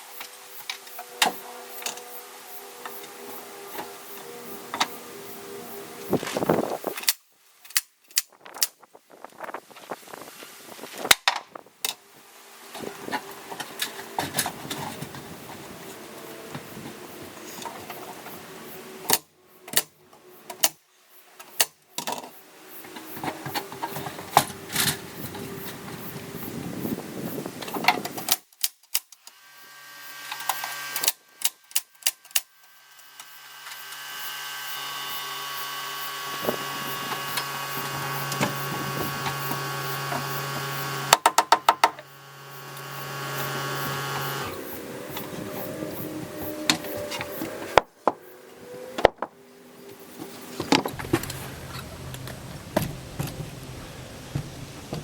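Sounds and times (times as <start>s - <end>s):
background noise: 0.0s - 55.0s
steady hum: 0.1s - 6.9s, 32.5s - 48.8s, 49.4s - 55.0s.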